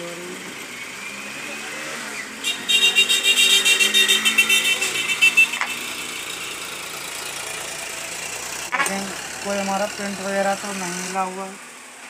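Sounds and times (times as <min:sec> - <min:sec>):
multimeter continuity buzzer beeping: 0:02.4 - 0:05.8.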